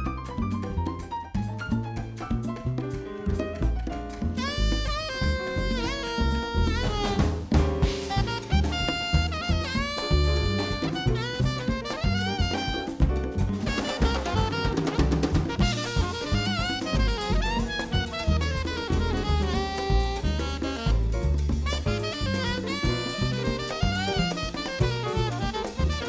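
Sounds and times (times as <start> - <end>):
bass: 0.0 - 26.0
drum kit: 0.0 - 26.0
saxophone playing: 4.3 - 26.0.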